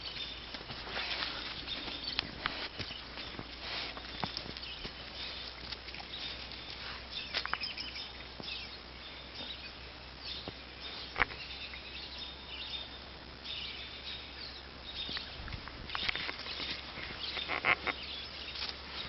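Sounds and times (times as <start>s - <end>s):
puppy scratching in dirt: 0.0s - 7.8s, 15.6s - 19.0s.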